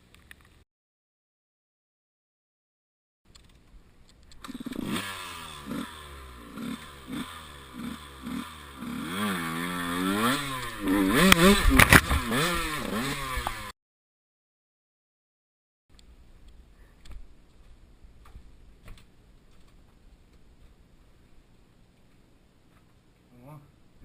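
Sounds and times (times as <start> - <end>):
motorcycle engine revving: 4.4 - 13.8.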